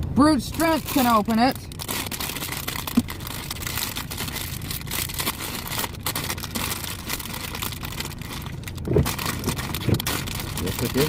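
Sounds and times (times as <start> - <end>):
truck engine humming: 0.0 - 11.0
plastic cutlery and bags rattling: 9.1 - 11.0.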